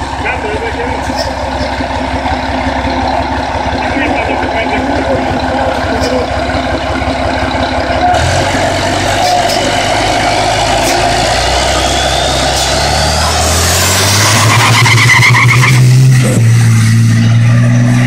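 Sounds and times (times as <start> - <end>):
truck engine running loudly: 0.0 - 18.0
thin rising whistle: 10.8 - 13.1.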